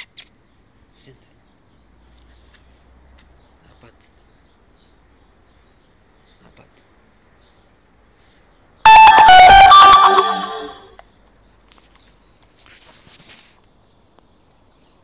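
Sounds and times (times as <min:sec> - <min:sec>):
faint birds chirping: 0:00.3 - 0:09.2.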